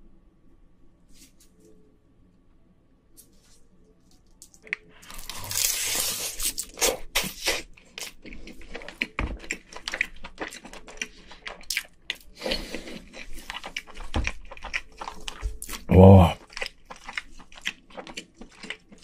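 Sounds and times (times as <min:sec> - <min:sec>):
close chewing: 0:04.6 - 0:19.0.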